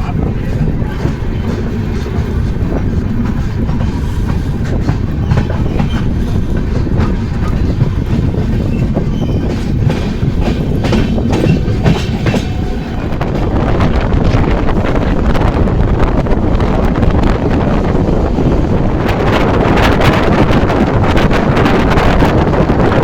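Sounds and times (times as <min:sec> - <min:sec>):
wheels clacking over rail joints: 0:00.0 - 0:13.6
train rumbling: 0:00.0 - 0:23.0.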